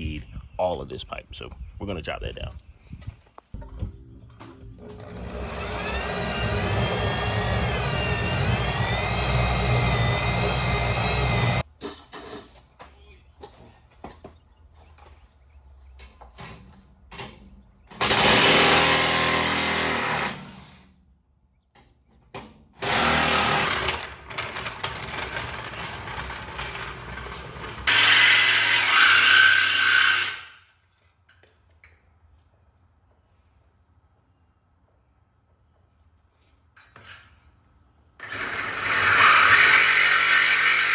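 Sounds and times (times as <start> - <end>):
power tool cutting steel pipe: 5.0 - 11.6, 18.0 - 20.6, 22.8 - 30.6, 38.2 - 40.9.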